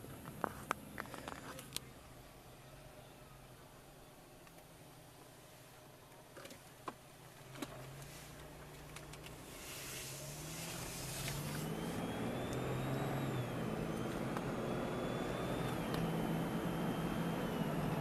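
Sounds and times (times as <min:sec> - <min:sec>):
car accelerating away: 0:09.0 - 0:18.0.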